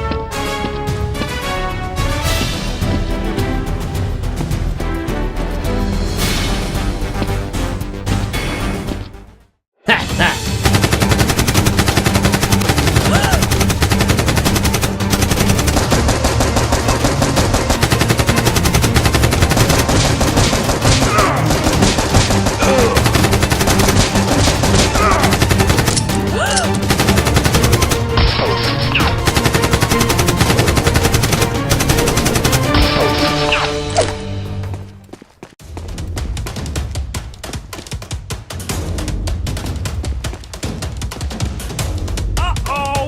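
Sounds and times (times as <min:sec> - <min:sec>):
background music: 0:00.0 - 0:43.0
rapid machine-gun fire: 0:10.5 - 0:26.1, 0:26.7 - 0:28.1, 0:29.0 - 0:32.9.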